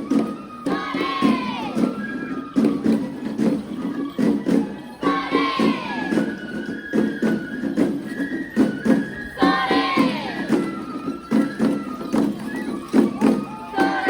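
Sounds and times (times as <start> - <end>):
drum beating steady rhythm: 0.0 - 14.0
voices singing: 0.6 - 2.1, 5.0 - 6.4, 9.1 - 11.0, 13.2 - 14.0
held high tones: 9.2 - 14.0
falling gliding call: 12.0 - 14.0.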